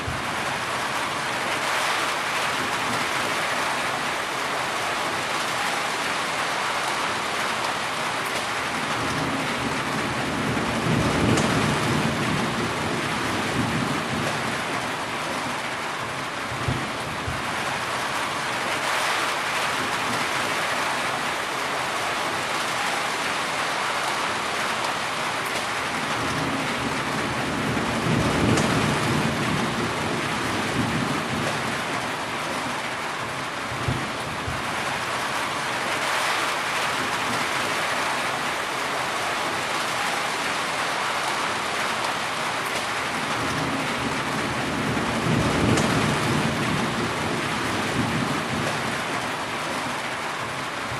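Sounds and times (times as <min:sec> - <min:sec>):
heavy rain: 0:00.0 - 0:50.9
low thunder rumbling: 0:26.2 - 0:31.9, 0:43.2 - 0:49.2.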